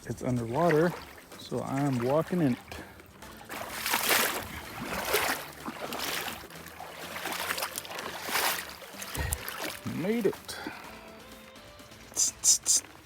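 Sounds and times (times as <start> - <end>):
footsteps wading through water: 0.0 - 11.5.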